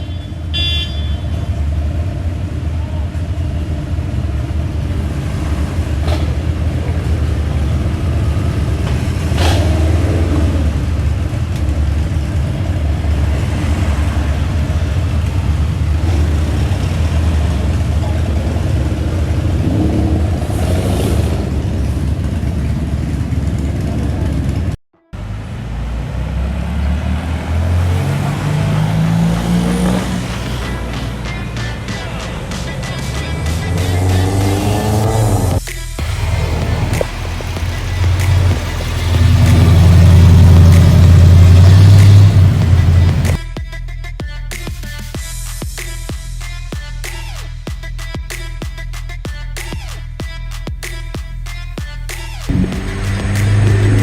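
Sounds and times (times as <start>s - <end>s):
car engine rumbling: 0.0s - 43.5s, 52.3s - 54.0s
street noise: 0.0s - 54.0s
car accelerating: 1.5s - 43.4s, 52.4s - 54.0s.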